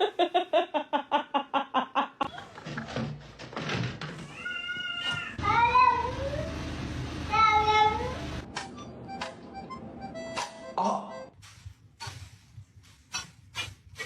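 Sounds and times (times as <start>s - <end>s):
cat meowing: 4.3s - 6.1s.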